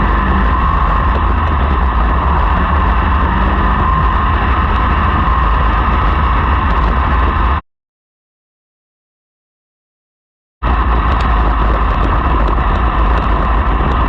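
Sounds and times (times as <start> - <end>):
race car engines droning: 0.0 - 7.6, 10.6 - 14.0.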